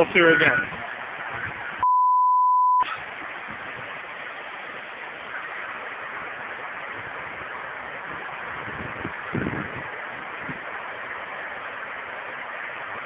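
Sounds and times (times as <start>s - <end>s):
floodwater rushing: 0.0s - 1.8s, 2.8s - 13.0s.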